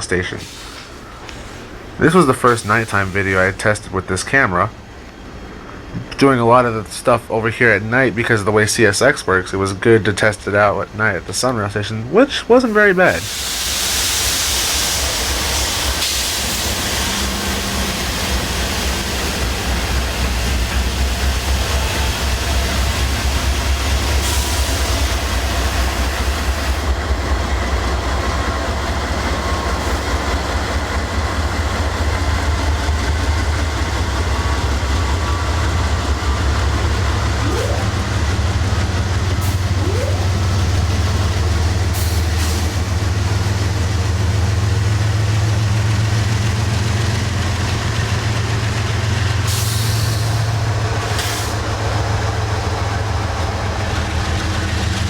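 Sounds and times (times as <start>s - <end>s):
diesel locomotive rumbling: 0.0s - 55.0s
air hiss bursts: 0.4s - 3.5s, 12.7s - 20.0s.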